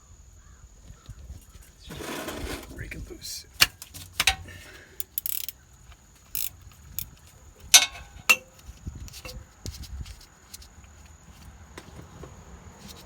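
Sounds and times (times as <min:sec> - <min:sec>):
metal clanks: 0:03.6 - 0:05.5, 0:07.6 - 0:08.6
wrench clicking on metal: 0:03.6 - 0:05.6, 0:06.2 - 0:08.6.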